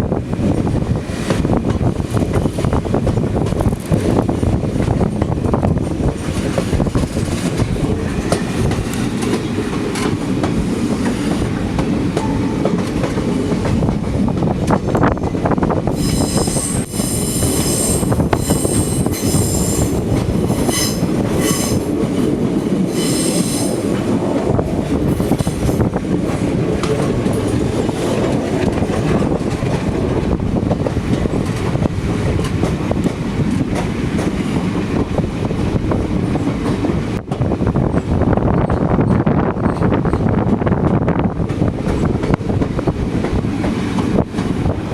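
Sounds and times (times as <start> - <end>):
train rumbling on rails: 0.0 - 44.9
wheel squeal: 16.0 - 19.9.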